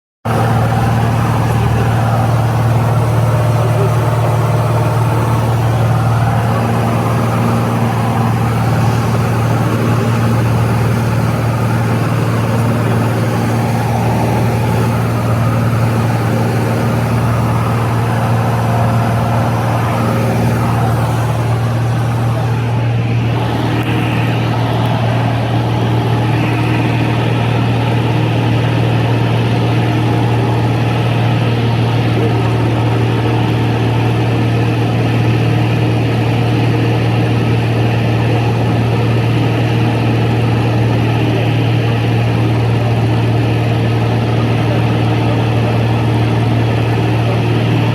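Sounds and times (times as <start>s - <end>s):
aircraft engine drone in cabin: 0.3s - 47.9s.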